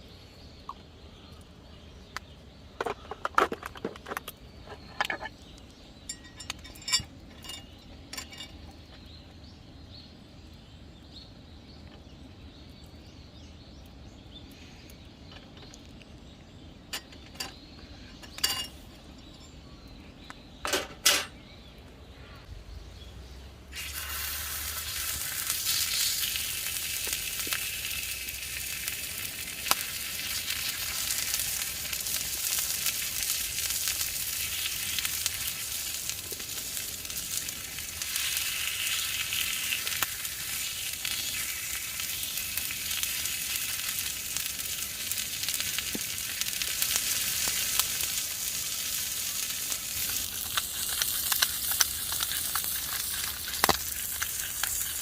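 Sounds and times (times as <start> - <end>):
food sizzling and frying: 23.7 - 55.0.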